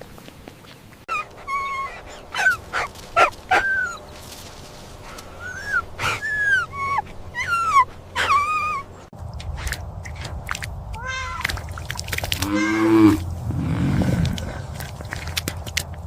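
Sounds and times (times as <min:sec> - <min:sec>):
young dog whining and yelping: 0:01.1 - 0:04.1, 0:05.3 - 0:09.0.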